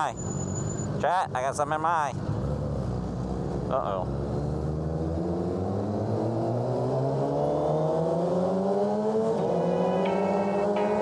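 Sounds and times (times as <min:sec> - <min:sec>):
thin high tone: 0:09.4 - 0:11.0.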